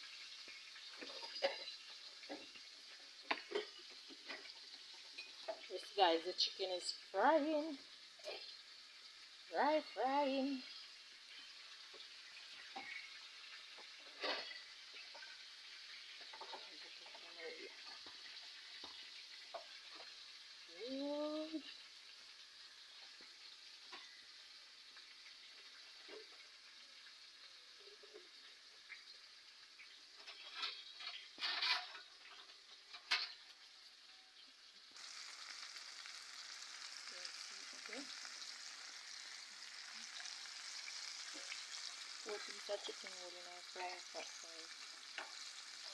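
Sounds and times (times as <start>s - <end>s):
chicken frying in hot oil: 0.0s - 45.9s
knocks and scrapes against pot: 30.2s - 33.4s.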